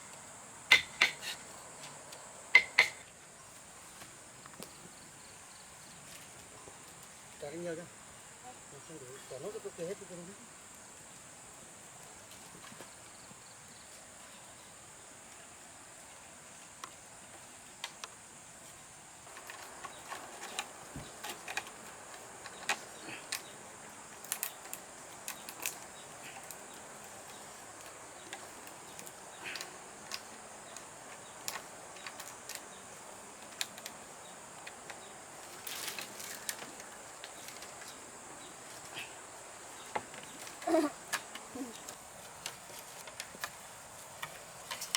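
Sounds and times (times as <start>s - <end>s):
knocks from handling bamboo and wood: 0.7s - 3.1s, 19.2s - 23.5s, 39.8s - 44.9s.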